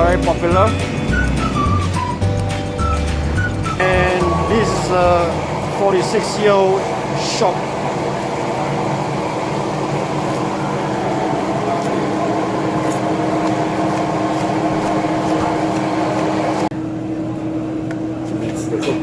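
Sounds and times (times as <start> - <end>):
constant mechanical hum: 3.7 - 19.0
murmur of background voices: 3.8 - 7.0.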